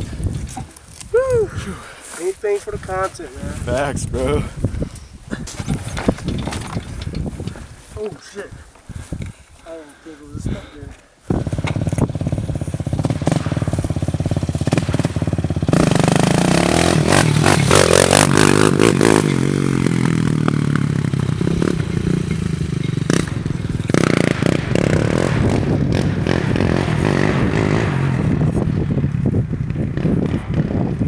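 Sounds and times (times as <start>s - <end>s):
knocks and scraping: 5.3s - 9.4s
atv engine revving: 5.5s - 7.6s, 11.3s - 31.0s.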